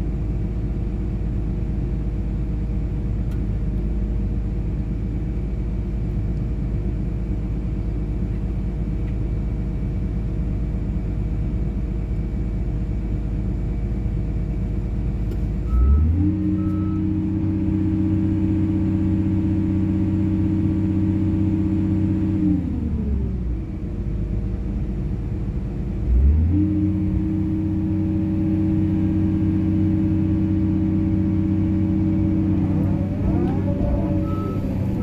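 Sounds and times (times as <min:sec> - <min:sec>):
excavator diesel engine revving: 0:26.1 - 0:35.0.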